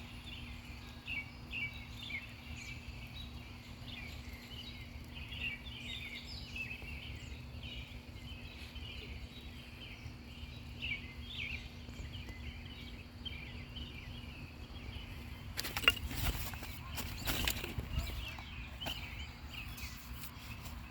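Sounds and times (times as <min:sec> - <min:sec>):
cicadas chorus: 0:00.0 - 0:20.9.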